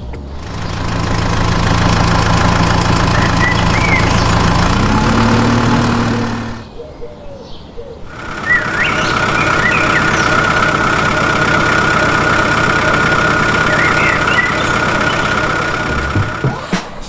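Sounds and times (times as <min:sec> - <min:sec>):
small motor whining: 0:08.1 - 0:17.0.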